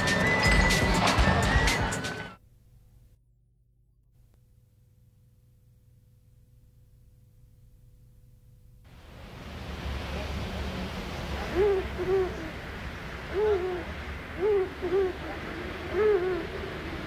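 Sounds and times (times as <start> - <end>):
steady hiss: 8.8 - 17.0
short hooting bird calls: 11.4 - 12.6, 13.2 - 17.0.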